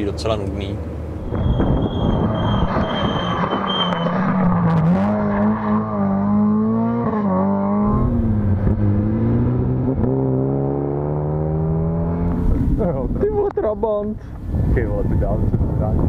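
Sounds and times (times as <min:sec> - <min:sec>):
rally car engine revving: 0:01.3 - 0:13.2.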